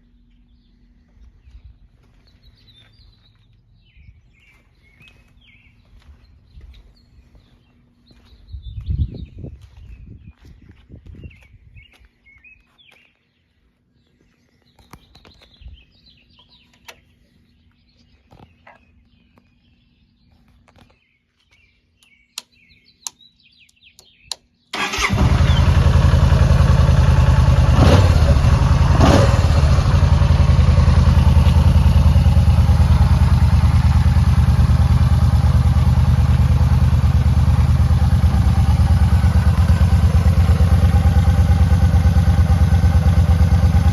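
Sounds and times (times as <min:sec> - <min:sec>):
birds chirping: 0:00.0 - 0:43.9
motorcycle engine starting and idling: 0:24.7 - 0:43.9.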